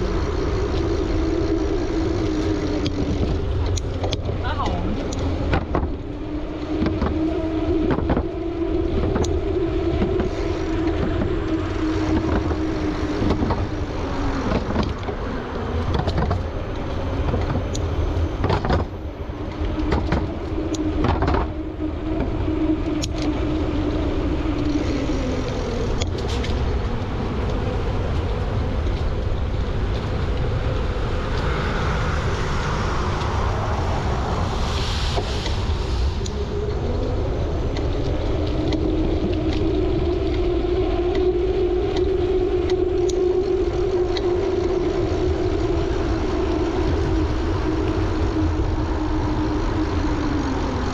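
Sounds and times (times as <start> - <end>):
road traffic passing: 0.0 - 50.9
wind rumbling on microphone: 0.0 - 50.9.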